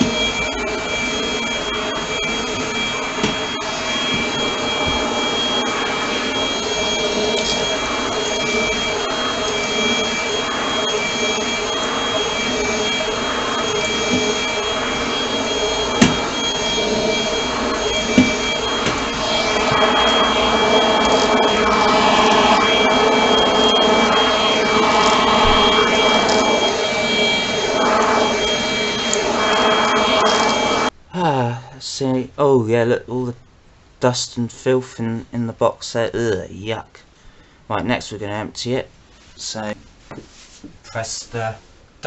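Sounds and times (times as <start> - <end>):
vacuum cleaner motor whining: 0.0 - 31.0
sharp knocks: 16.0 - 16.2.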